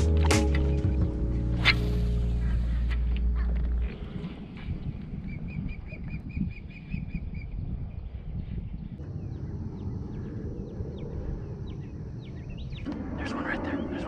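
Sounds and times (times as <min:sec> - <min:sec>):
bird chirping: 0:08.3 - 0:14.0.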